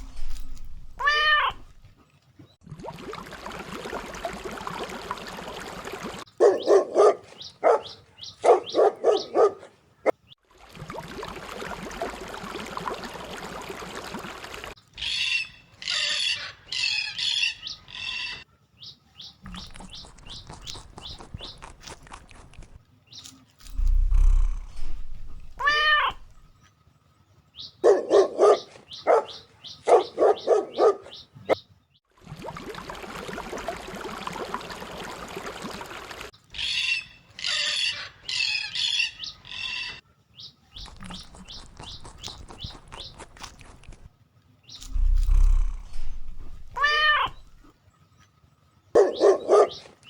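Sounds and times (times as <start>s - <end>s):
dog barking: 6.4s - 9.8s, 27.8s - 31.2s, 49.0s - 50.0s
high bird chirps: 15.0s - 21.8s, 36.6s - 43.3s.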